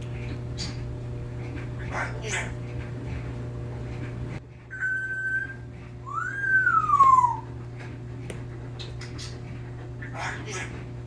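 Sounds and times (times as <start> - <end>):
parrot whistling: 4.7 - 7.5.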